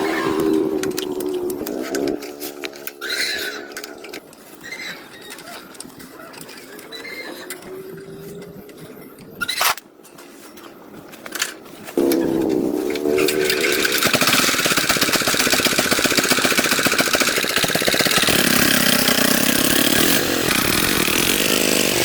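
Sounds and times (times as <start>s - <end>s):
motor droning: 12.0s - 14.6s.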